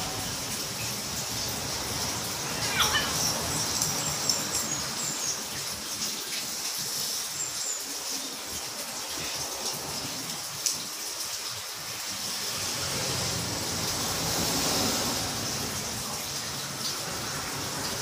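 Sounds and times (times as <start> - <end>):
small birds chirping: 2.4 - 8.4.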